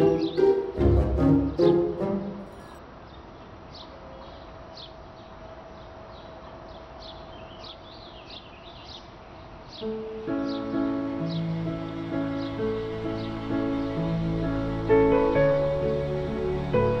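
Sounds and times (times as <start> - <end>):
small birds chirping: 0.0 - 0.7, 3.0 - 15.4
outdoor background hiss: 0.0 - 17.0.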